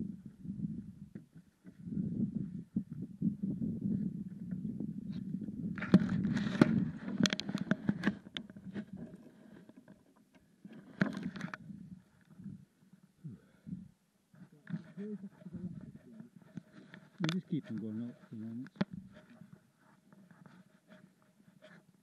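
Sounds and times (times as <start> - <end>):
bike rattling and clicking: 5.8 - 10.0.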